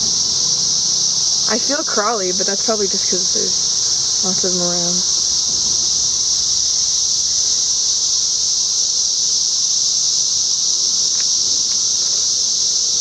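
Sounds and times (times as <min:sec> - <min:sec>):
cicadas droning: 0:00.0 - 0:13.0.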